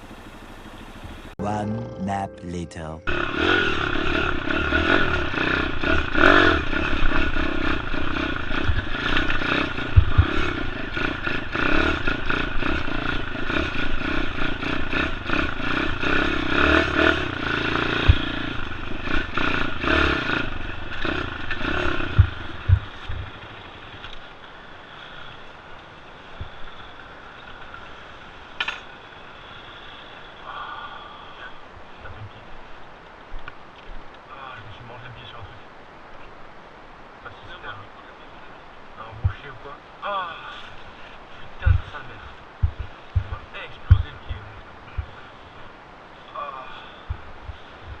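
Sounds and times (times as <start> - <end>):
pit bike engine revving: 3.1 - 24.0, 42.6 - 45.2
bike clattering over bumps: 18.0 - 24.1, 42.6 - 45.2.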